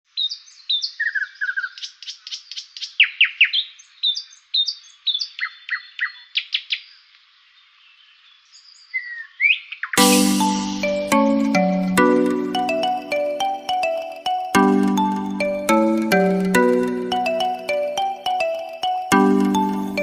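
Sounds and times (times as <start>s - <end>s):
loud chiming music: 10.0s - 20.0s.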